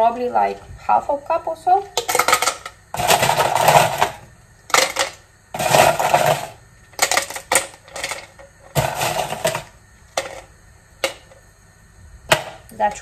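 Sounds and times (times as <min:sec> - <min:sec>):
ice cubes clattering into cup: 0:02.0 - 0:10.4.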